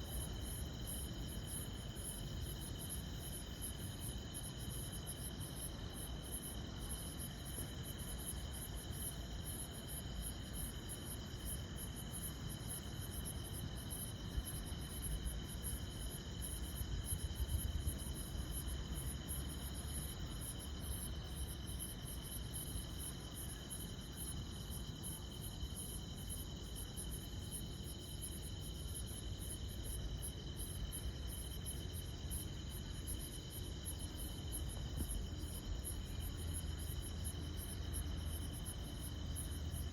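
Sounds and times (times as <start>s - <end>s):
high-pitched insect trill: 0.0s - 39.9s
insects chirping: 0.0s - 39.9s.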